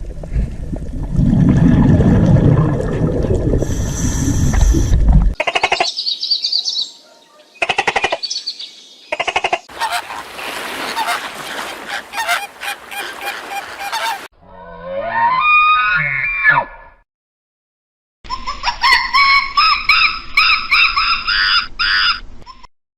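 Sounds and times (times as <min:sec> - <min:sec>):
birds calling: 0:05.4 - 0:14.3
animal call rising in pitch: 0:13.9 - 0:16.9.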